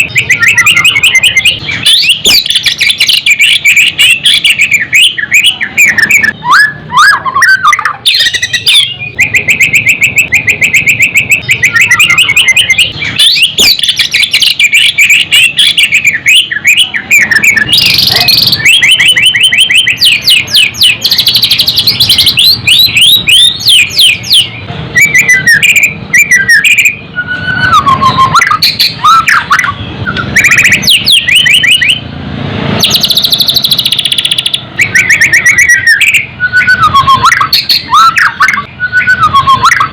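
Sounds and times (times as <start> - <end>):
bird singing trills: 0.0 - 32.1, 32.8 - 39.9.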